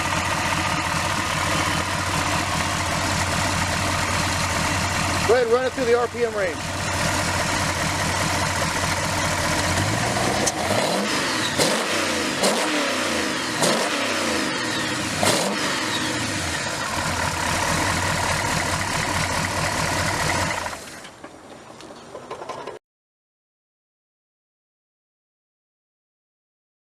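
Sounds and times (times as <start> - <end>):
car engine revving: 0.0 - 20.8.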